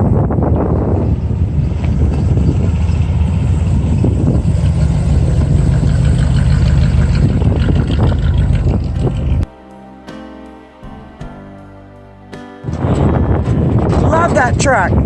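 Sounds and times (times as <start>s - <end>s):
car engine idling: 0.1s - 9.5s.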